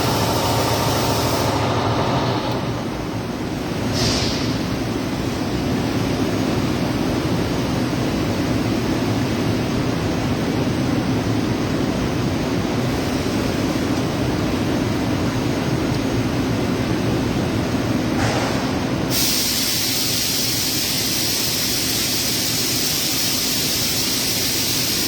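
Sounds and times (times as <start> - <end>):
welding arc hissing: 0.0 - 1.6, 19.1 - 25.0.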